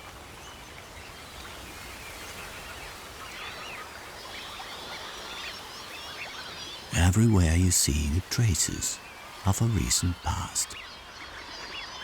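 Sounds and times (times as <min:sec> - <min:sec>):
flock of birds chirping: 0:00.0 - 0:12.0
steady background hiss: 0:01.0 - 0:11.3.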